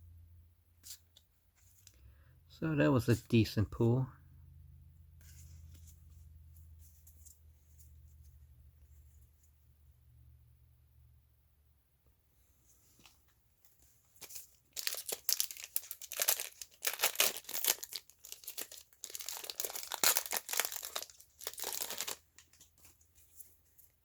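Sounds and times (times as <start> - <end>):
foil wrapper tearing and crinkling: 14.2 - 22.8.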